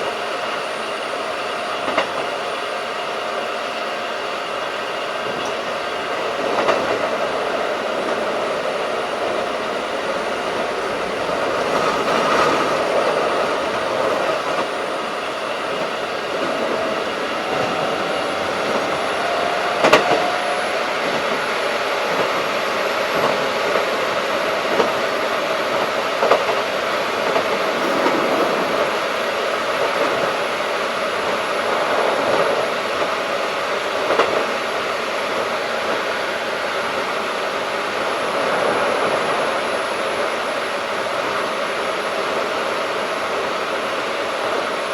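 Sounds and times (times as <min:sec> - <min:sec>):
rail-joint clicks: 0:00.0 - 0:40.4
train wheels and motors rumbling: 0:00.0 - 0:44.9
faint rising tone: 0:16.1 - 0:22.0.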